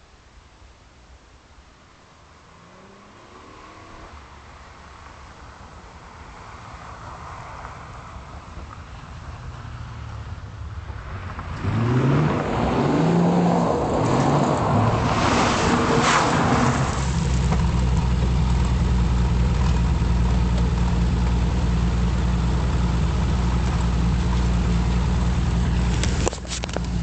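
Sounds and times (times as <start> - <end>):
car engine under power: 11.4 - 27.0.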